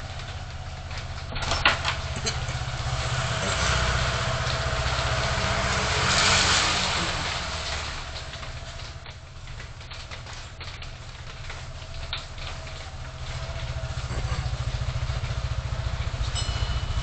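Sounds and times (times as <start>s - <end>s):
car engine running: 0.0s - 17.0s
road noise: 0.0s - 17.0s.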